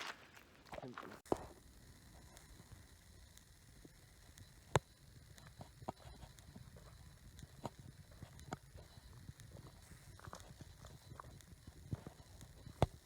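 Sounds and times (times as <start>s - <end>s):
footsteps on dirt trail: 0.0s - 1.5s.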